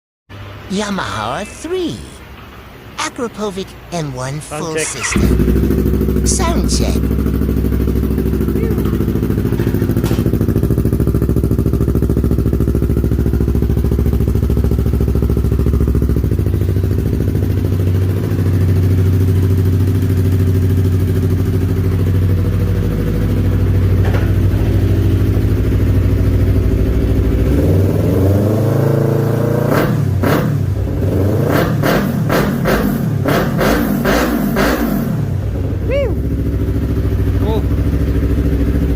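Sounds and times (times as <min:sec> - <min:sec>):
motorcycle engine idling: 0:05.0 - 0:06.3, 0:07.0 - 0:28.0, 0:35.3 - 0:38.9.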